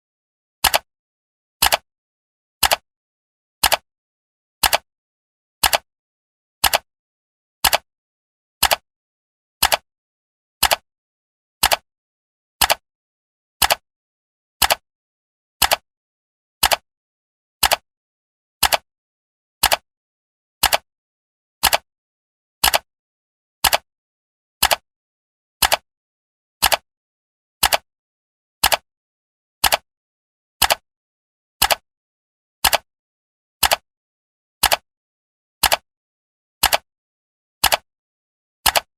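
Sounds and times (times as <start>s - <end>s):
clock ticking: 4.6s - 4.8s, 8.6s - 8.8s, 19.6s - 19.8s, 20.6s - 20.8s, 21.6s - 21.8s, 22.6s - 22.8s, 27.6s - 27.8s, 29.6s - 29.8s, 30.6s - 30.8s, 31.6s - 31.8s, 32.6s - 32.9s, 33.6s - 33.8s, 34.6s - 34.8s, 35.6s - 35.8s, 36.6s - 36.8s, 37.6s - 37.8s, 38.6s - 38.9s.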